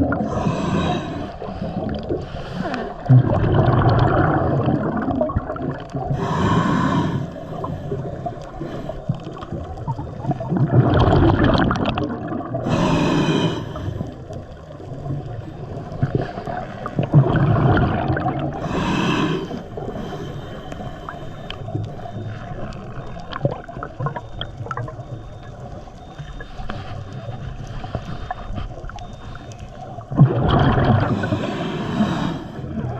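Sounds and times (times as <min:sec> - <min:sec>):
bubbling exhaled air: 0:00.0 - 0:25.1, 0:30.0 - 0:32.9
regulator inhale hissing: 0:00.2 - 0:03.0, 0:06.1 - 0:09.2, 0:12.6 - 0:14.2, 0:18.6 - 0:22.2, 0:31.0 - 0:32.7.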